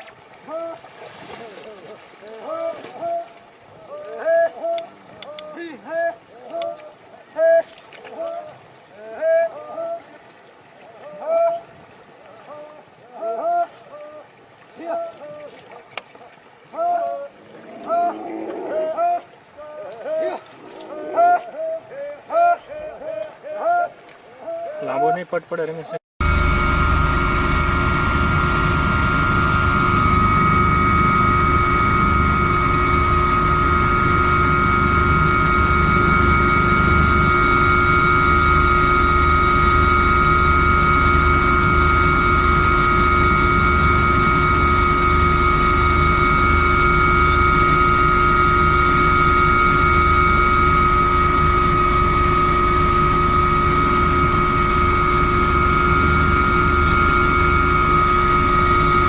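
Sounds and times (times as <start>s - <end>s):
machine drone with high whine: 26.2s - 59.0s.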